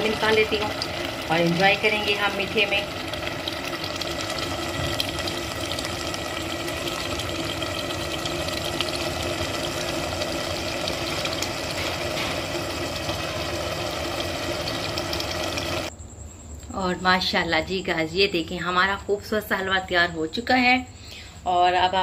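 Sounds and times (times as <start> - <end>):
food sizzling and crackling in pot: 0.0 - 15.9.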